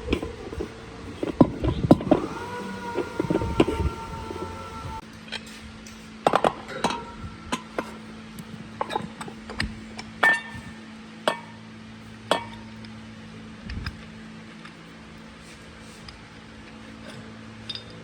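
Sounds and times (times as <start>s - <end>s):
metal tools clinking: 17.0s - 18.0s.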